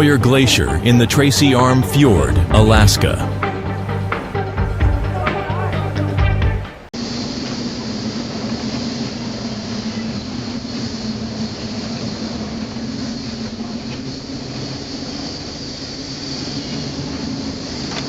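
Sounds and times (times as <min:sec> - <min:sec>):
mechanical drone: 0:00.0 - 0:05.6, 0:07.0 - 0:18.0.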